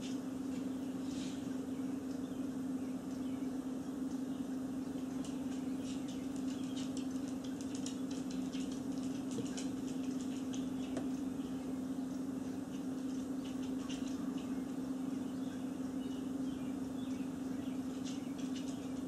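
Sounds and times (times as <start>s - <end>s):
steady low hum: 0.0s - 19.0s
small birds chirping: 0.5s - 19.0s.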